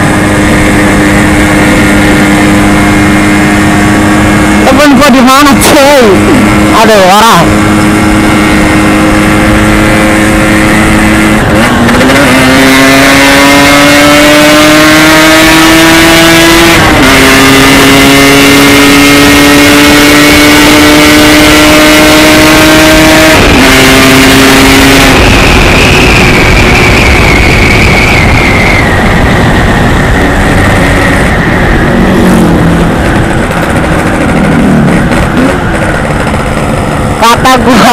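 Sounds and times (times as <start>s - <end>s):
motorcycle engine accelerating: 0.0s - 37.9s
wind noise rushing: 22.2s - 37.2s.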